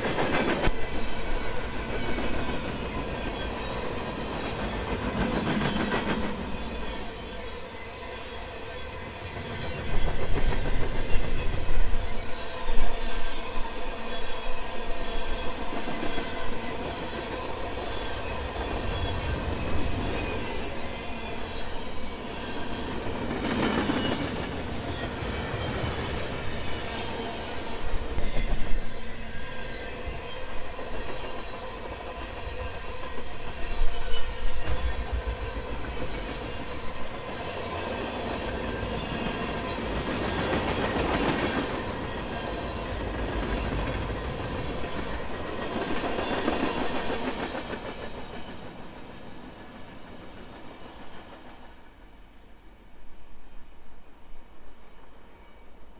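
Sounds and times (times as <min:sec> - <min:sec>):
freight train wheels rumbling: 0:00.0 - 0:52.0.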